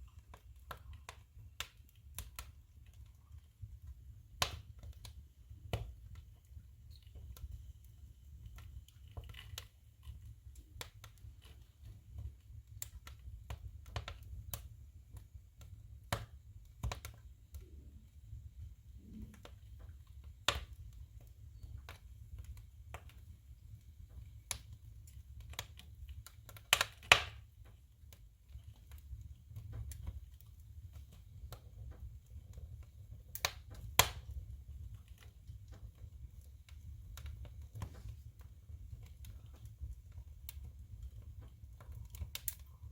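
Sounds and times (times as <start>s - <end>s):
firewood crackling and popping: 0.0s - 42.9s.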